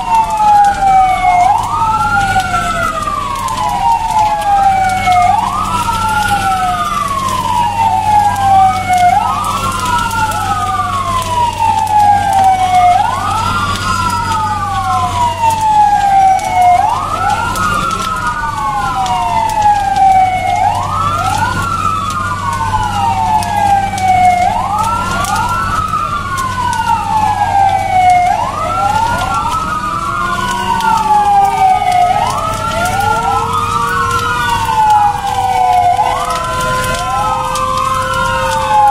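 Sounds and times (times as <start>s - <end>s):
vehicle sirens wailing: 0.0s - 38.9s.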